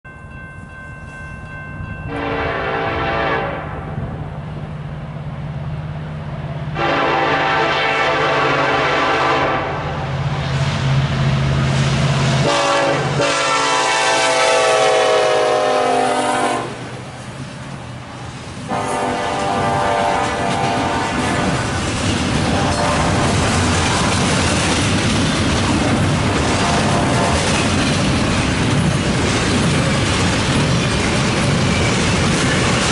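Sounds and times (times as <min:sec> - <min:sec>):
locomotive air horn blasts: 0:02.1 - 0:04.0, 0:06.8 - 0:10.0, 0:12.4 - 0:16.9, 0:18.7 - 0:21.5, 0:22.4 - 0:23.5, 0:26.6 - 0:27.4.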